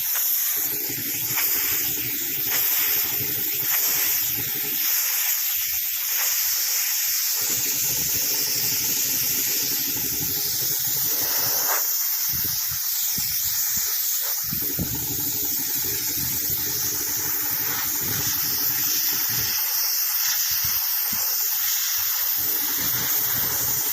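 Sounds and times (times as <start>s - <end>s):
compressed air hissing: 0.0s - 23.9s
compressor rumble: 0.0s - 23.9s.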